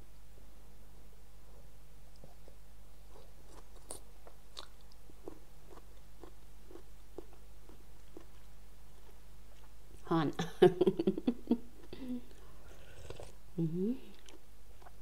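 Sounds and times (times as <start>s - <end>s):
person chewing with wet mouth clicks: 2.1s - 9.7s, 14.1s - 15.0s.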